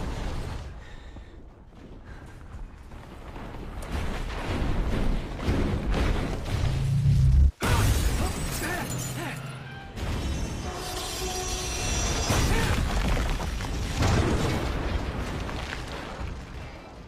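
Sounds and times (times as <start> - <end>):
crash with shattering debris: 3.0 - 17.0
film score music: 8.6 - 12.9.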